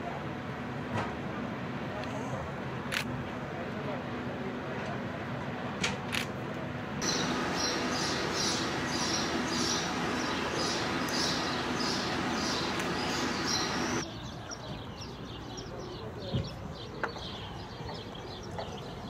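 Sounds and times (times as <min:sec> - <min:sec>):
small birds chirping: 0:07.0 - 0:19.0.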